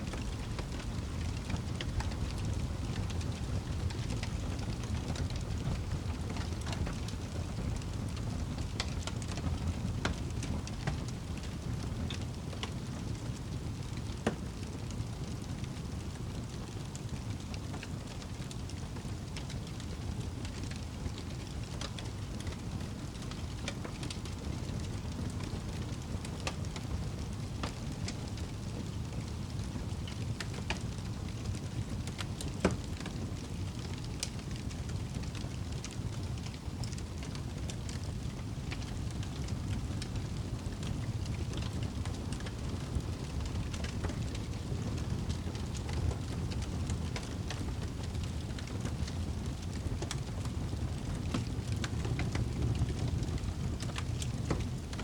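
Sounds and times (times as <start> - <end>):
campfire crackling and popping: 0.1 - 55.0.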